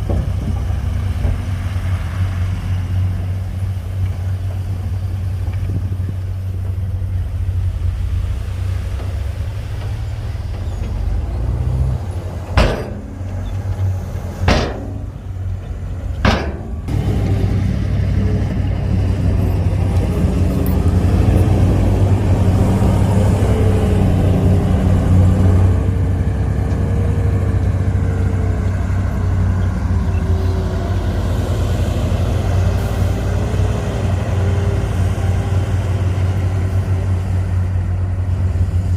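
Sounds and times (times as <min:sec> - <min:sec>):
heavy diesel engine running: 0:00.0 - 0:38.9
sharp bangs: 0:12.5 - 0:13.4, 0:14.4 - 0:15.4, 0:16.2 - 0:16.9.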